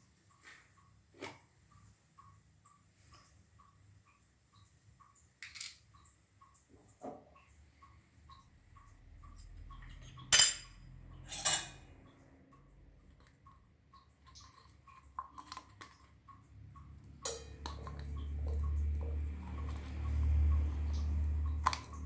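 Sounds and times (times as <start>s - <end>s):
metal utensils clinking on dishes: 9.4s - 11.9s, 17.2s - 18.2s.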